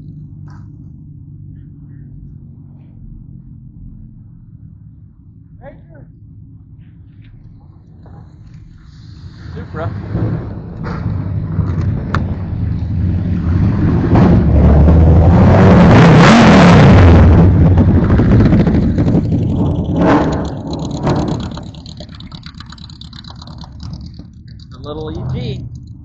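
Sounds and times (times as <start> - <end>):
car driving past: 8.0 - 26.0.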